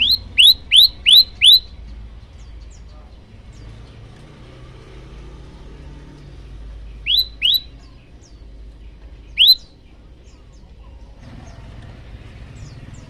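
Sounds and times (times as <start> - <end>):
bird calling sharp upslurred notes: 0.0 - 2.0, 6.8 - 10.7
faint bird chirps: 0.0 - 3.7, 6.8 - 11.7.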